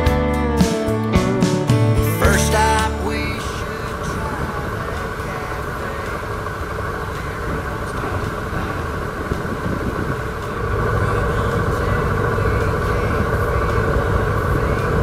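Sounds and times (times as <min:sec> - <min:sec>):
motorcycle engine: 0:00.0 - 0:15.0
road rumble: 0:00.0 - 0:15.0.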